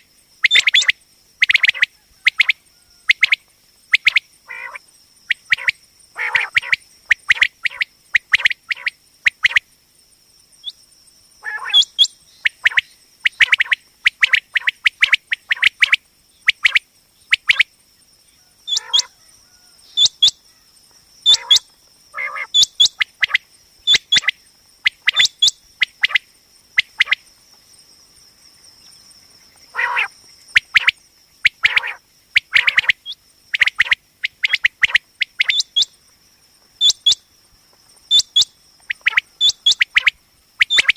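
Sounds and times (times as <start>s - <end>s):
quail calling: 0.4s - 3.4s, 4.0s - 9.6s, 11.4s - 15.9s, 18.4s - 24.3s, 24.9s - 26.2s, 29.7s - 35.9s, 36.8s - 37.2s, 38.1s - 40.9s.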